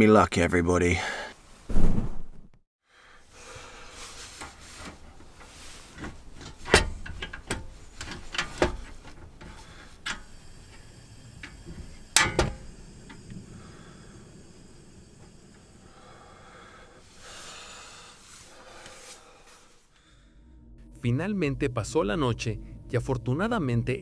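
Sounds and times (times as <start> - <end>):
rustling: 3.3 - 10.3
low steady hiss: 3.3 - 19.8.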